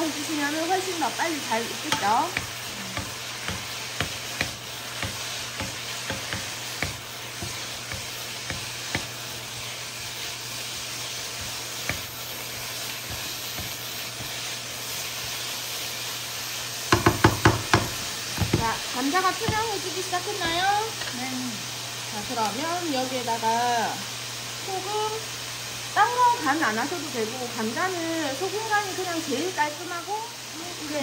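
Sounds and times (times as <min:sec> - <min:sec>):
potatoes sizzling in oil: 0:00.0 - 0:31.0
wooden spatula knocking against pan: 0:01.9 - 0:09.2, 0:11.4 - 0:12.1, 0:16.9 - 0:19.8.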